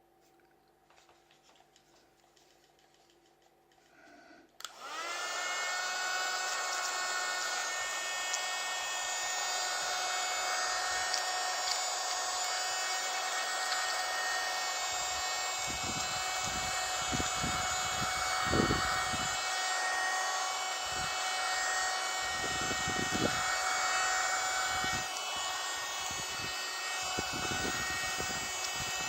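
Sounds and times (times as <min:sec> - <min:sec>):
small vacuum motor whining: 0:04.6 - 0:29.0.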